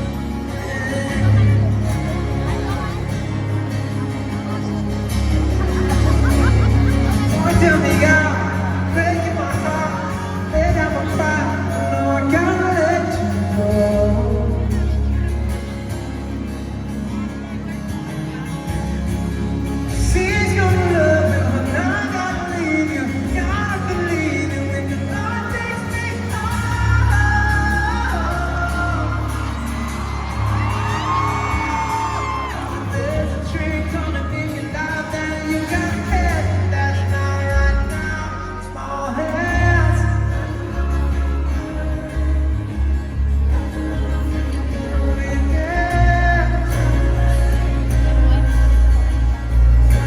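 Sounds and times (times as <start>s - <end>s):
crowd whooping: 0.0s - 13.4s, 26.4s - 36.4s
person singing: 0.0s - 16.0s, 19.4s - 50.0s
pop band playing: 0.0s - 50.0s.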